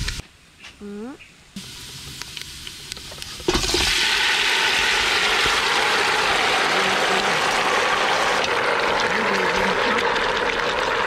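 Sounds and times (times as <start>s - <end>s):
garlic frying in oil: 1.6s - 11.0s
meat sizzling in a pot: 1.6s - 11.0s.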